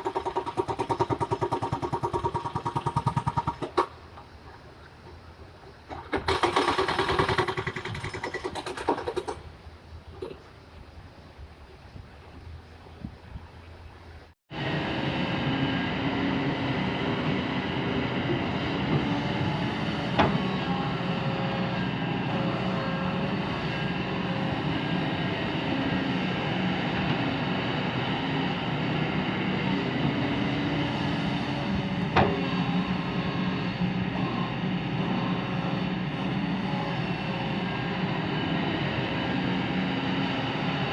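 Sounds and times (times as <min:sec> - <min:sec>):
excavator diesel engine running: 0:05.8 - 0:09.4, 0:14.5 - 0:40.9.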